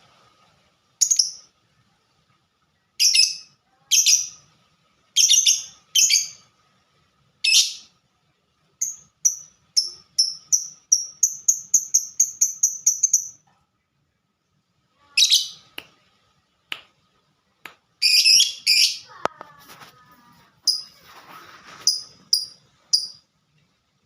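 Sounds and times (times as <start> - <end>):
lovebird chirping: 1.0 - 1.5, 3.0 - 4.5, 5.2 - 6.5, 7.4 - 7.9, 8.8 - 13.4, 15.1 - 15.8, 18.0 - 19.2, 20.2 - 23.3.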